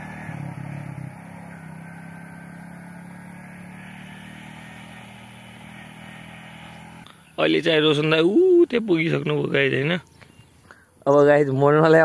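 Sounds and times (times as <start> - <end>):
motorcycle engine running: 0.0 - 7.3.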